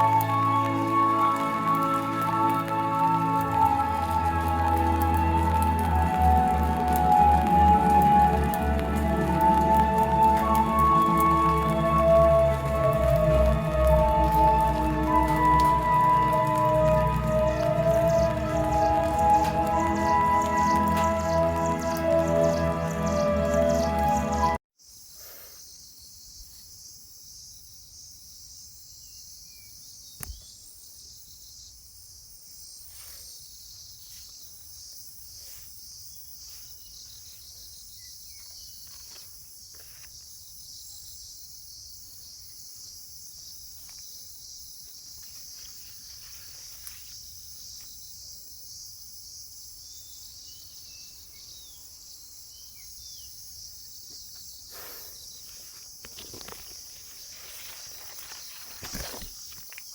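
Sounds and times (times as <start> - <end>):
bird chirps: 0.0 - 24.6
insects chorus: 0.0 - 59.9.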